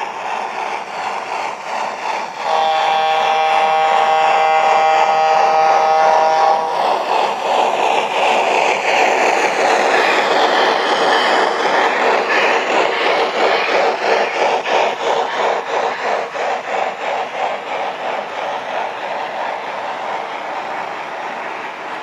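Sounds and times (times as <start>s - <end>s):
steam exhaust hissing: 0.0s - 22.0s
steam locomotive chime whistle: 2.4s - 7.0s.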